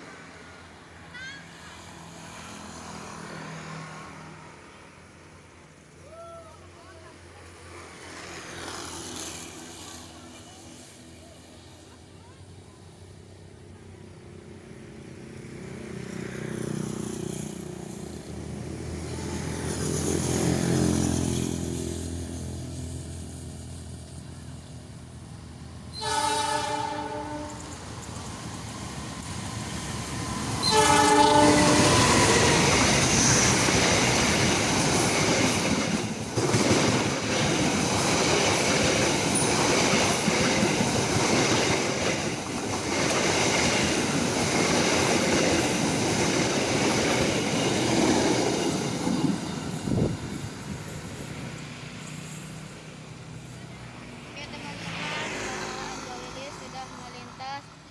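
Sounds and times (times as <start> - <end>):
diesel locomotive engine: 0.0 - 57.9
train horn: 25.9 - 27.8, 30.6 - 33.5
train wheels clattering on rails: 27.5 - 57.4.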